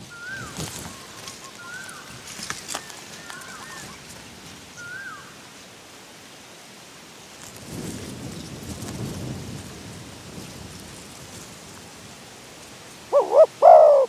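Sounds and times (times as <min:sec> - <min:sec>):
faint outdoor ambience: 0:00.0 - 0:14.0
bird whistled call: 0:00.1 - 0:02.1, 0:04.8 - 0:05.3.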